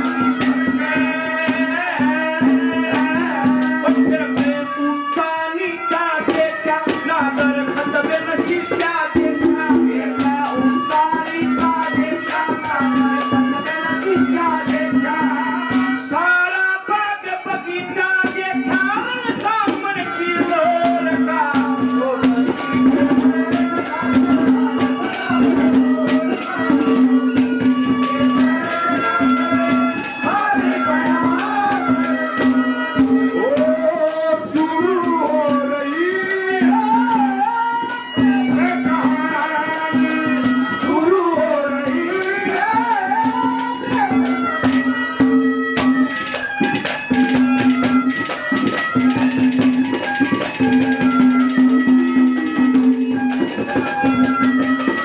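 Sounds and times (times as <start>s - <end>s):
fast hand-drum strokes: 0.0s - 5.3s, 5.9s - 16.2s, 17.2s - 55.0s
wavering folk melody: 18.4s - 39.4s.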